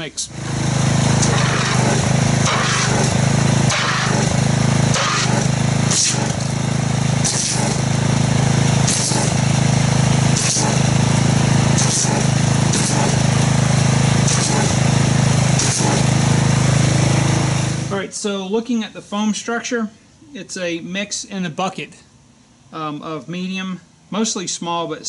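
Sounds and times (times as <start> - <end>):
pressure washer motor hum: 0.0 - 18.0
water jet spraying into bucket: 0.3 - 17.9.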